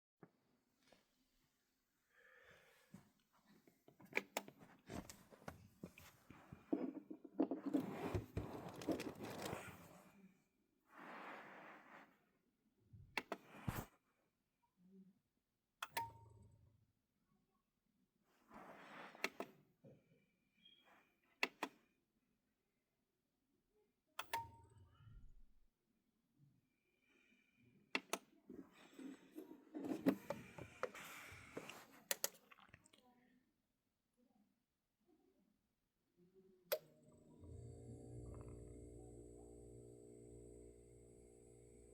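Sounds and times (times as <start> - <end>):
rustling and scraping: 4.6 - 10.1.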